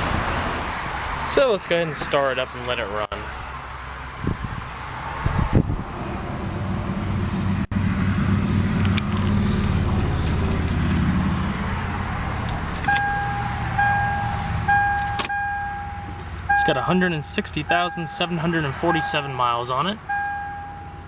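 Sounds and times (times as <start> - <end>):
car engine starting and idling: 6.4 - 21.0
electronic warning chime: 12.9 - 21.0.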